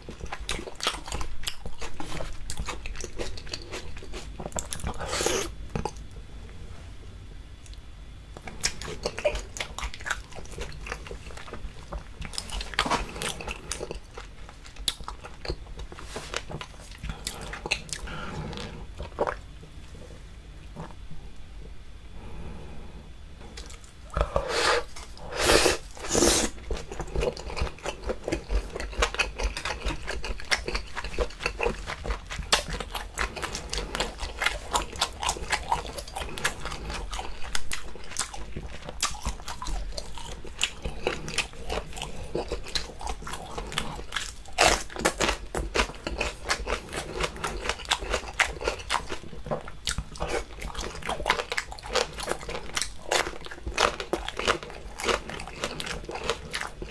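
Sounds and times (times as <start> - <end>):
wet chewing and mouth smacks: 8.4 - 19.4, 25.9 - 56.9.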